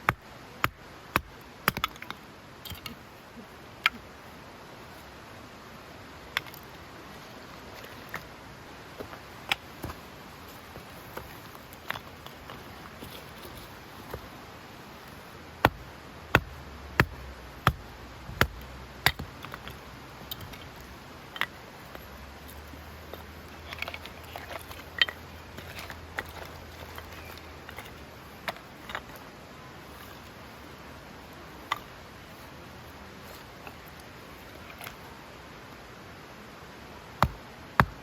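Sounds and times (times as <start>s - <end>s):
axe chopping firewood: 0.0s - 3.0s, 15.6s - 29.2s, 37.2s - 38.0s.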